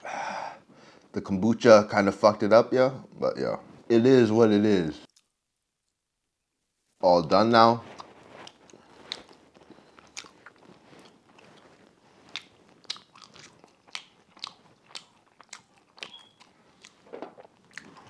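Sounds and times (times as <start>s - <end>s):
man chewing: 7.8s - 18.0s
wet mouth clicks and smacks: 12.2s - 18.0s.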